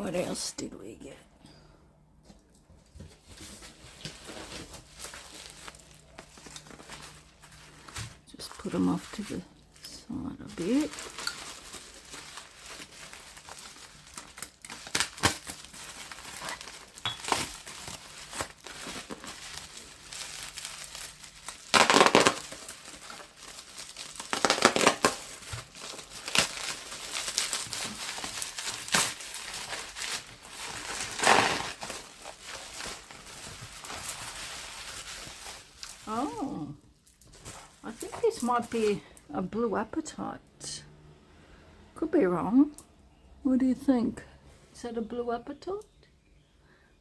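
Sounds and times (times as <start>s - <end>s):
crinkly packaging rustling: 2.3s - 39.2s.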